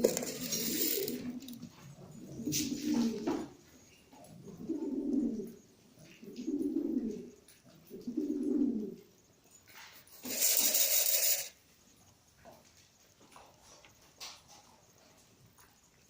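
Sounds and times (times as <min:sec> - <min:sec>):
pigeon cooing: 0:00.0 - 0:03.6, 0:04.2 - 0:09.1.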